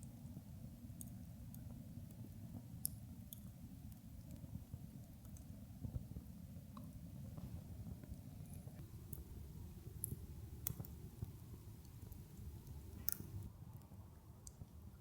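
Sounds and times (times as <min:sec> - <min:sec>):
campfire crackling: 0:00.0 - 0:13.5
sharp pops of fire: 0:08.8 - 0:13.5.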